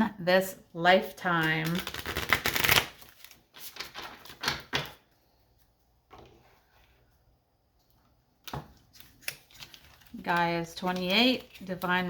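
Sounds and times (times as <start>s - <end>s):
cards shuffling: 1.6s - 5.0s.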